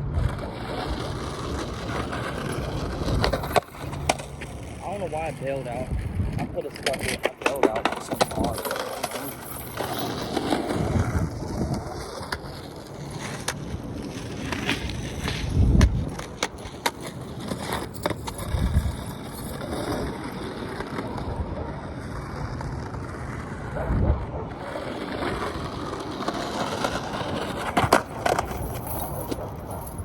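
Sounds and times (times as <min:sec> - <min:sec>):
skateboard clacking on ground: 0:00.0 - 0:30.0
skateboard wheels rolling on pavement: 0:00.0 - 0:30.0
wind on microphone: 0:05.7 - 0:07.1, 0:10.6 - 0:12.4, 0:15.2 - 0:16.3, 0:18.4 - 0:19.2, 0:23.7 - 0:24.7.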